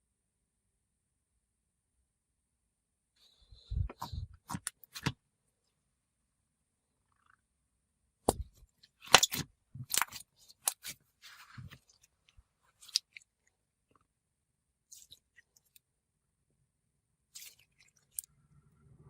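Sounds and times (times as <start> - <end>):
slime squished by hand: 8.3 - 13.5, 17.3 - 18.4.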